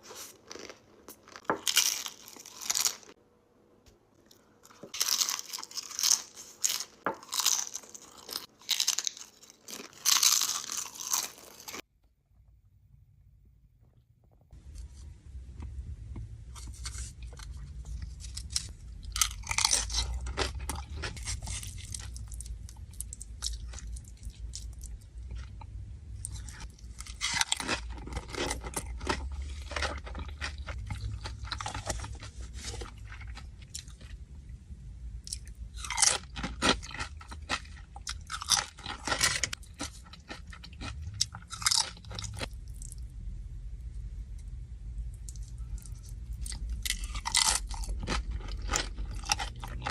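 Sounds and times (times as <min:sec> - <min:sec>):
crunchy chewing of chips: 0:00.0 - 0:03.2, 0:04.2 - 0:11.9, 0:16.5 - 0:34.2, 0:35.2 - 0:43.1, 0:45.1 - 0:49.9
steady low hum: 0:10.1 - 0:49.9.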